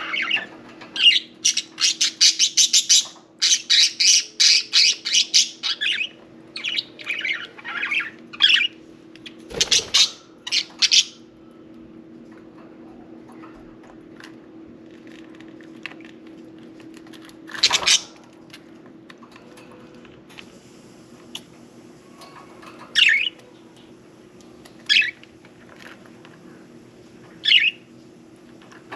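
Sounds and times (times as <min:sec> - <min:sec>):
budgerigars squawking and chirping: 0:00.0 - 0:08.8, 0:09.5 - 0:11.2, 0:17.6 - 0:18.1, 0:27.4 - 0:27.8.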